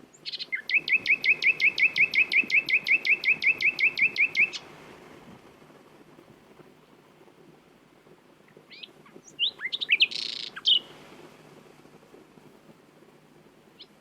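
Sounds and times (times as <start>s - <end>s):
nightingale singing repeated notes: 0.0s - 4.7s, 8.7s - 10.9s, 13.8s - 14.0s.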